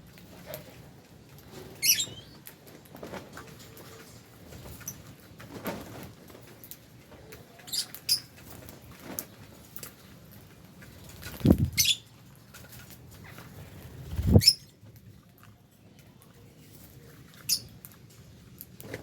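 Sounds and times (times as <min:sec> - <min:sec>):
lovebirds chirping: 0:01.8 - 0:02.5, 0:11.4 - 0:12.1.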